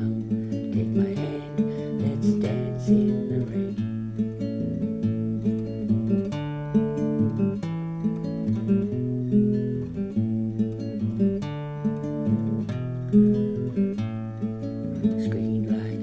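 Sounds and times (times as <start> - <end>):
strummed acoustic guitar: 0.0 - 16.0.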